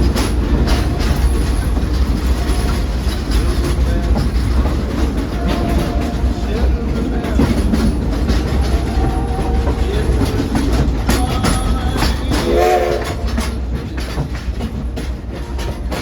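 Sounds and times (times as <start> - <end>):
steam train wheels clattering: 0.0 - 16.0
train whistle blast: 12.3 - 13.5.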